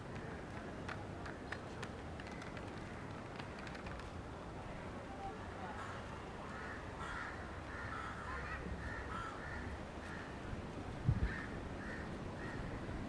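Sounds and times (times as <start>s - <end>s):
outdoor background noise: 0.0s - 13.0s
crows cawing: 5.8s - 10.4s, 11.3s - 12.8s.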